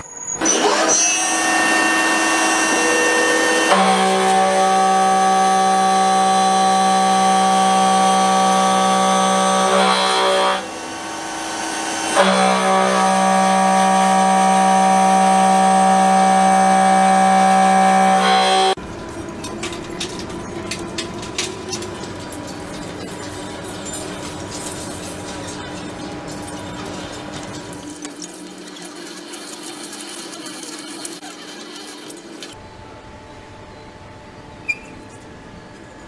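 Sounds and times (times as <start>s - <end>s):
machine tool whining hum: 0.0s - 36.0s
rattling mechanical noise with clicks: 18.8s - 32.6s.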